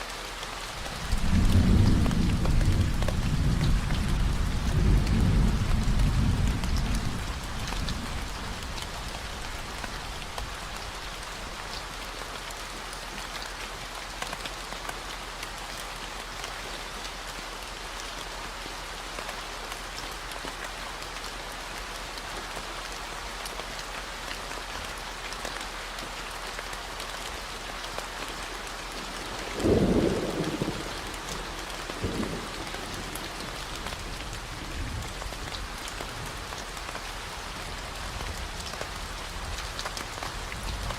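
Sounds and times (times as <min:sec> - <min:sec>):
steady rain falling: 0:00.0 - 0:40.9
thunder rumbling: 0:00.9 - 0:10.3, 0:29.5 - 0:35.5.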